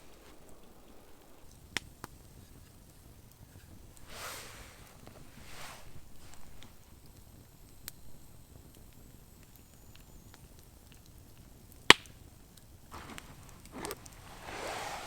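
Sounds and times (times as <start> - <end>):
rustling and scraping: 3.4 - 6.9, 12.9 - 15.0.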